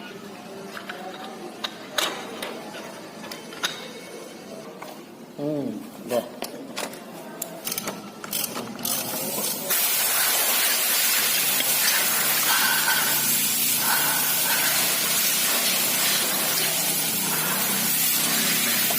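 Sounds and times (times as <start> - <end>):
compressed air hissing: 9.7 - 18.9.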